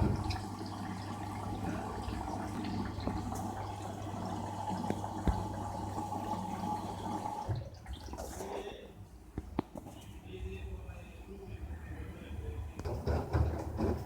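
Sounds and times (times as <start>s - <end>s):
water sloshing in washing machine: 0.0s - 8.8s, 12.8s - 14.0s
washing machine hum: 0.0s - 8.9s, 11.6s - 14.0s.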